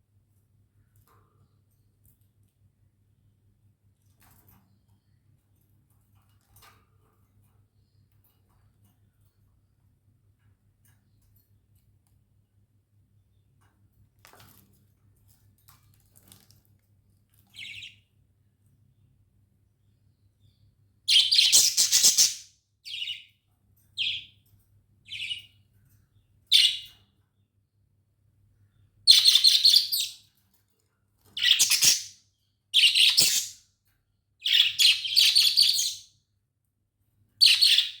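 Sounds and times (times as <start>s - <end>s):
budgerigars chirping: 21.1s - 23.2s, 29.1s - 30.2s, 31.4s - 32.2s, 32.8s - 33.6s, 34.4s - 36.1s, 37.4s - 38.0s.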